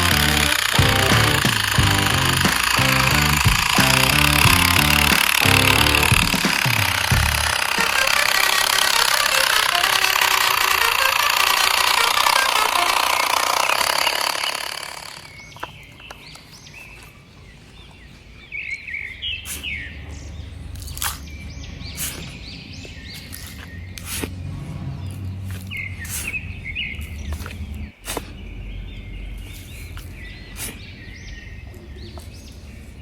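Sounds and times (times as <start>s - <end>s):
loud dense noise: 0.0s - 15.3s
sharp clicks: 0.0s - 16.5s
birds chirping: 0.0s - 33.0s.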